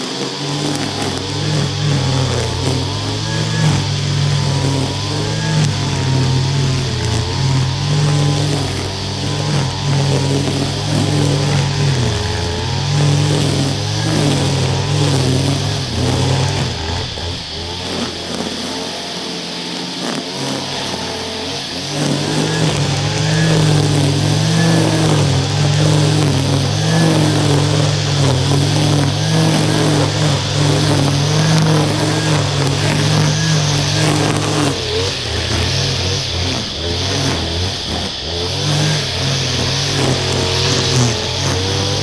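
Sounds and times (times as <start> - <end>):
small two-stroke engine running: 0.0 - 42.0.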